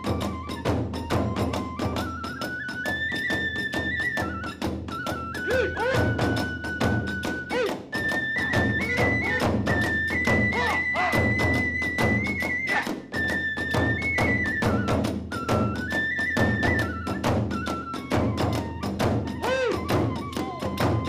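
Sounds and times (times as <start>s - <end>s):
bamboo flute: 0.0s - 21.0s.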